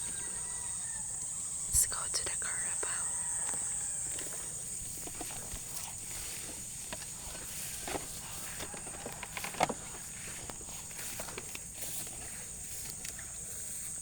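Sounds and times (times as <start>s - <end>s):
steady high-pitched hiss: 0.0s - 14.0s
footsteps of walker and dogs: 3.4s - 14.0s.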